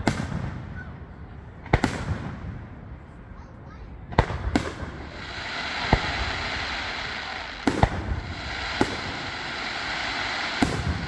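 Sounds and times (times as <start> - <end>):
fireworks bangs: 0.0 - 3.1, 4.0 - 11.0
steady hiss: 4.8 - 11.0.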